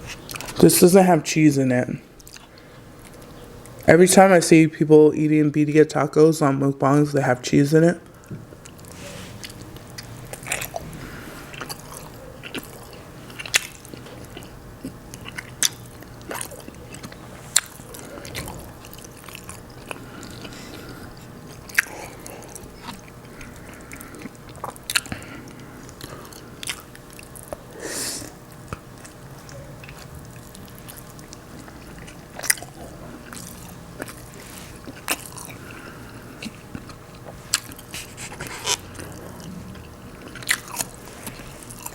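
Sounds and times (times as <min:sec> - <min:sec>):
wet chewing: 0:02.2 - 0:03.9, 0:08.1 - 0:41.9
breathy sound: 0:21.8 - 0:22.7.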